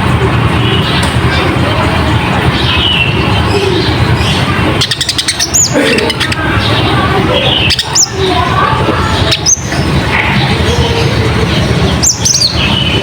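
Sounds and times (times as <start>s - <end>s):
bird chattering song: 0.4s - 13.0s.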